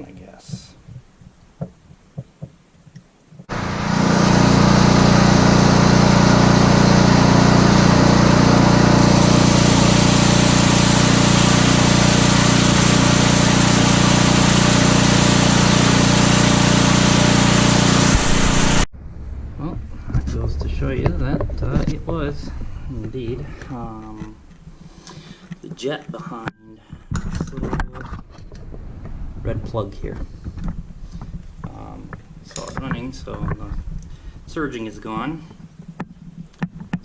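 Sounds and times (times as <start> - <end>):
snowblower engine running: 3.5 - 18.9.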